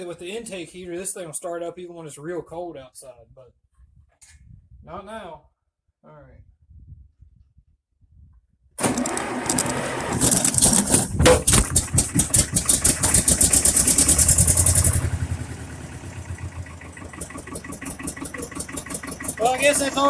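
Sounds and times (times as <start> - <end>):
diesel engine running: 8.8 - 20.0
engine starter cranking: 8.8 - 20.0.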